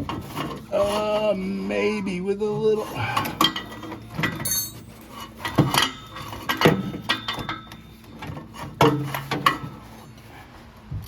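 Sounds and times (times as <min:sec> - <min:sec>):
metal tools clanking on metal: 0:04.4 - 0:05.6.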